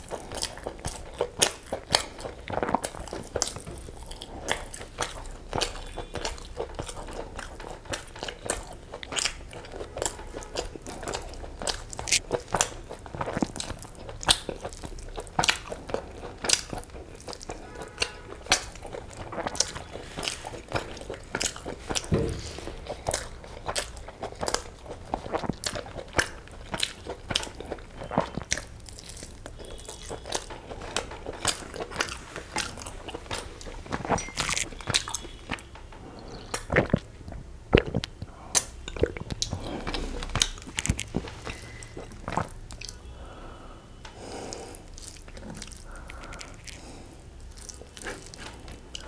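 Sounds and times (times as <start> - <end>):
chewing and mouth clicks: 0.0 - 43.1, 44.0 - 49.0
person swallowing juice: 36.2 - 42.7.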